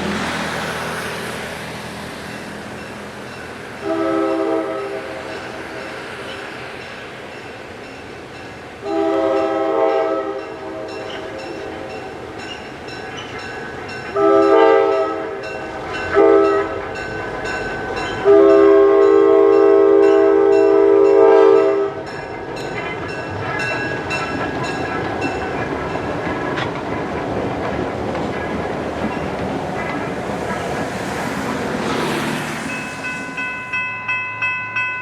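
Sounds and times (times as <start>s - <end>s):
train rumble and wheel noise: 0.0s - 35.0s
train horn chord blasts: 3.8s - 5.3s, 8.8s - 11.6s, 14.2s - 16.8s, 18.2s - 22.1s.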